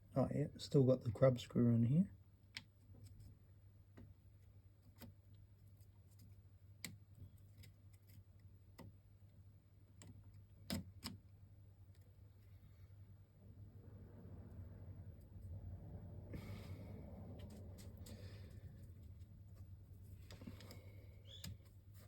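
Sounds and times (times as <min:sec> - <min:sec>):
steady low hum: 0:11.4 - 0:22.0.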